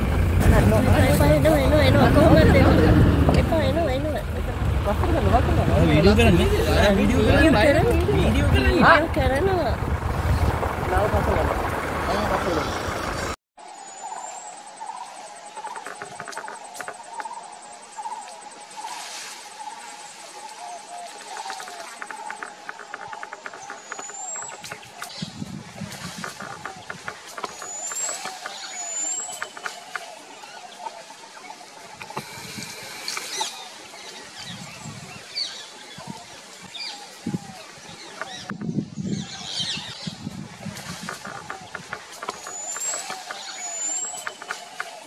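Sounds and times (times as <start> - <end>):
bird warbling chirp: 12.6 - 32.2, 40.9 - 45.0
faint insect hiss: 13.6 - 26.6, 27.2 - 38.2.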